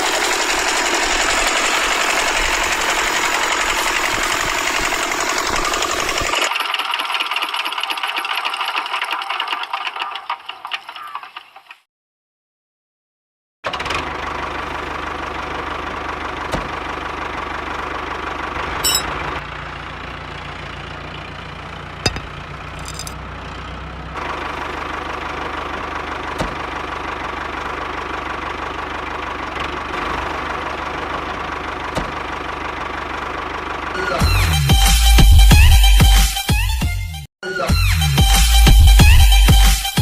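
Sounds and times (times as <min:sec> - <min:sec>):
tractor engine running: 0:00.0 - 0:07.8, 0:14.0 - 0:34.2.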